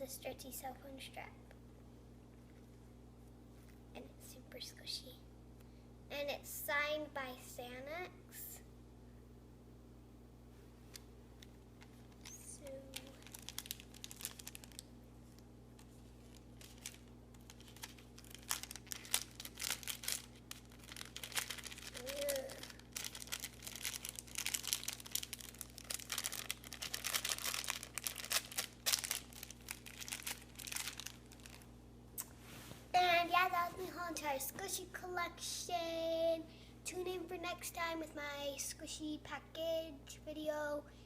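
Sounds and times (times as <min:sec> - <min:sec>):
plastic packaging crinkling: 0:11.4 - 0:31.7.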